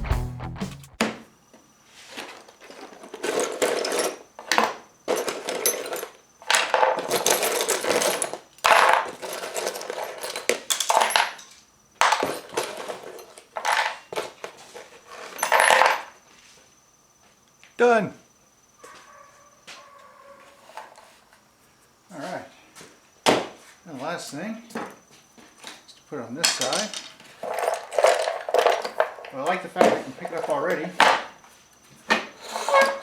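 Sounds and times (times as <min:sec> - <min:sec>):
tools clattering and scraping: 0:02.1 - 0:16.2, 0:20.4 - 0:21.4, 0:24.7 - 0:33.0.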